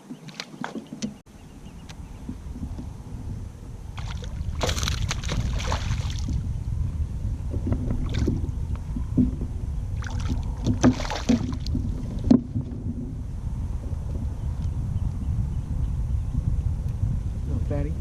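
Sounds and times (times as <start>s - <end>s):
kayak paddle splashing: 0.0s - 1.2s, 3.8s - 6.4s, 10.0s - 12.9s
wind rumble on microphone: 0.0s - 18.0s
dull knocks: 10.6s - 13.0s.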